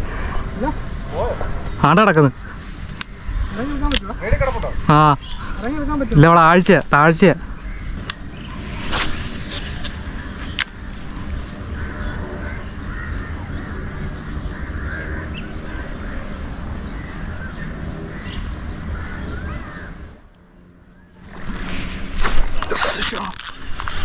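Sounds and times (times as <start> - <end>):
low rumble: 0.0 - 4.9
birds warbling calls: 0.0 - 23.4.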